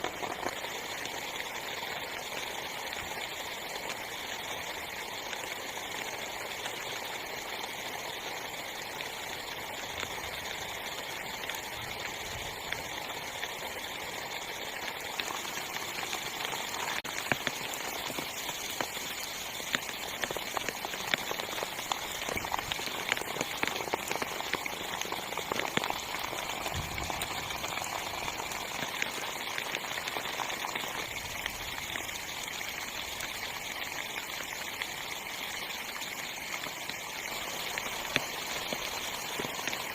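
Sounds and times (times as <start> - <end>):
heavy rain on a tent: 0.0 - 39.9
raindrops tapping on fabric: 16.5 - 30.2.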